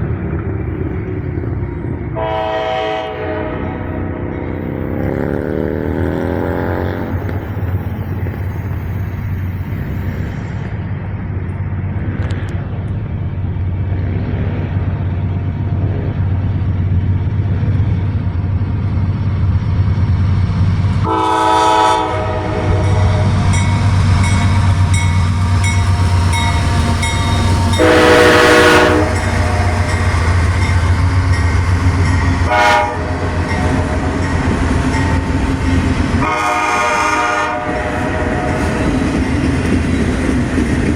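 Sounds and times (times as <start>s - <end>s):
diesel locomotive rumbling: 0.0s - 40.9s
train horn blasts: 2.2s - 8.9s, 21.0s - 31.1s, 32.4s - 39.3s.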